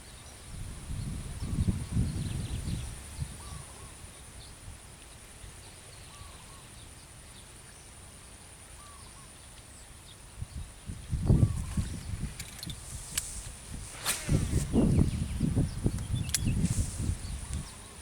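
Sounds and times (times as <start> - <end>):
low rustling thump: 11.2 - 17.7.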